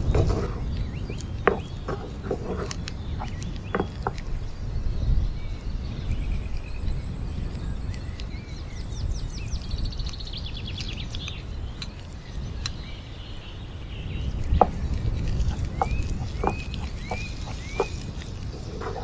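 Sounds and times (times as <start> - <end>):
birds chirping: 0.0 - 19.0
high bird trill: 5.5 - 19.0.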